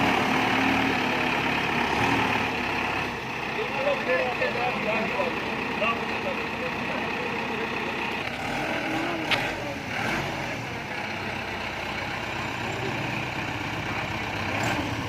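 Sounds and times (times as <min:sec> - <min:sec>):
diesel tractor engine running: 0:00.0 - 0:15.0.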